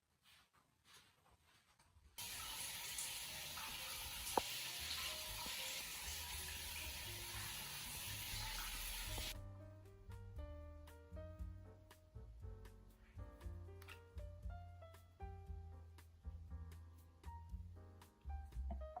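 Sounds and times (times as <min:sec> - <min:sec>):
tap water running into sink: 0:02.2 - 0:09.4
soft plucked background music: 0:03.2 - 0:19.0.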